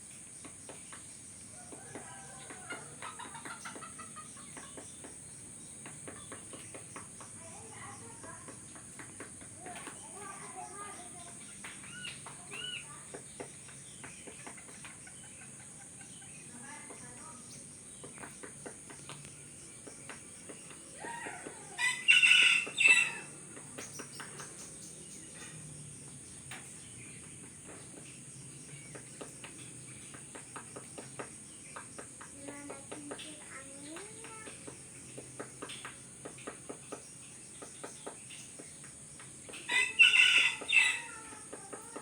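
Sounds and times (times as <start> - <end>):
chicken calling: 21.0 - 23.3, 39.6 - 41.9.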